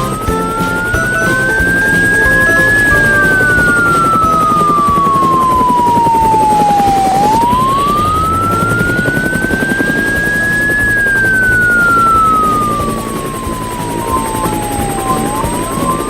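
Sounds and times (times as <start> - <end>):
cartoon police siren wailing: 0.0 - 16.0
low rumble: 3.0 - 14.2.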